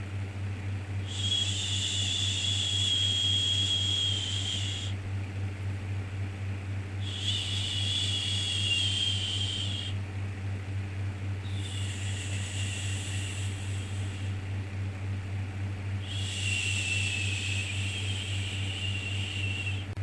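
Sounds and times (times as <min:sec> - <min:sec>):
steady low hum: 0:00.0 - 0:20.0
person shushing: 0:11.5 - 0:14.4.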